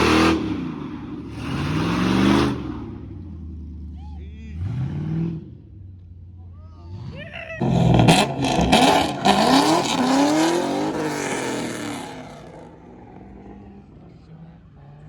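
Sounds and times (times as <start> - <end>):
engine revving with loud exhaust: 0.0 - 6.0, 6.9 - 15.0
exhaust cracks: 7.6 - 13.7.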